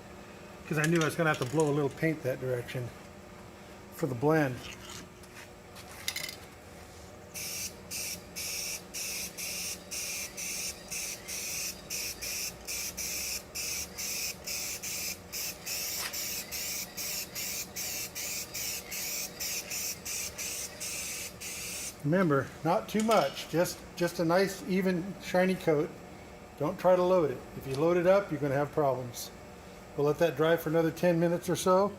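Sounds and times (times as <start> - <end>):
spray can hissing in bursts: 7.4 - 21.9.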